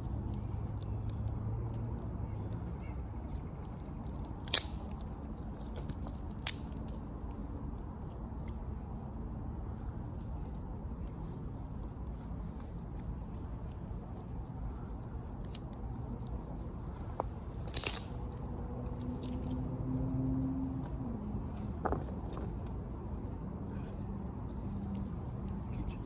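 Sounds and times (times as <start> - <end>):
dry wood crackling: 0.0 - 7.4, 11.2 - 19.7.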